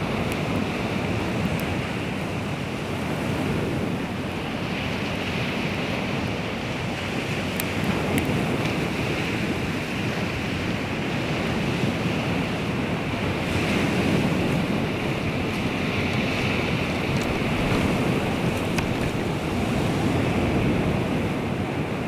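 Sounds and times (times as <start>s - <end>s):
waves washing ashore: 0.0s - 22.0s
wind noise on microphone: 7.2s - 22.0s.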